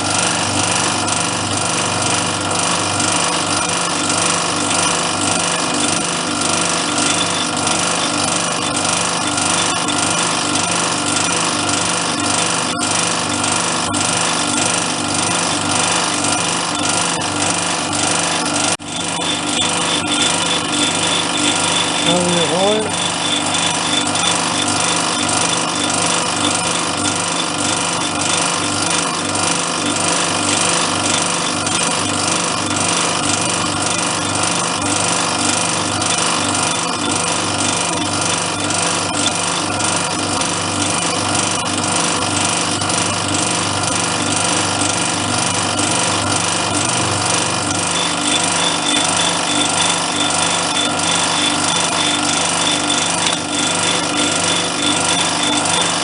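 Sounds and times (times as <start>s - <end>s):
drill bit cutting through workpiece: 0.0s - 56.0s.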